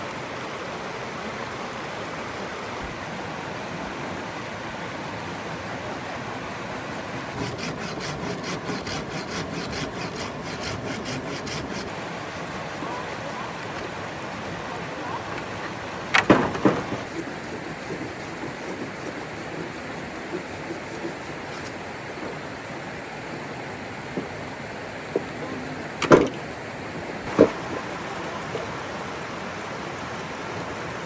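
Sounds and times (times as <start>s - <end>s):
rushing water: 0.0s - 31.0s
loud clatter of knocks: 16.1s - 19.2s, 26.0s - 26.4s.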